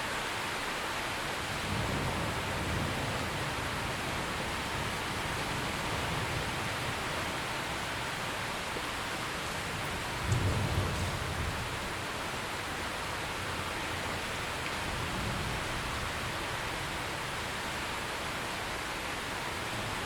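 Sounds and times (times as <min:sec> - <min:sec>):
steady rain: 0:00.0 - 0:20.0
low rumble of thunder: 0:01.6 - 0:07.9, 0:09.6 - 0:12.1, 0:13.4 - 0:17.6.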